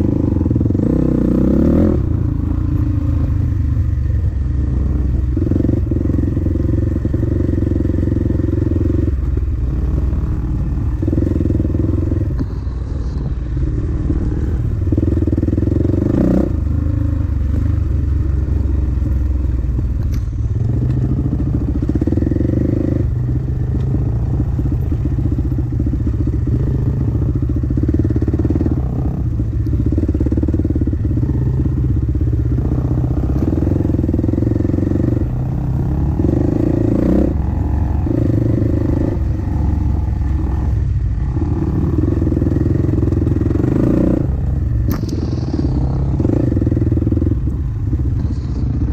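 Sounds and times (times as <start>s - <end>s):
dirt bike engine revving: 26.2s - 48.9s.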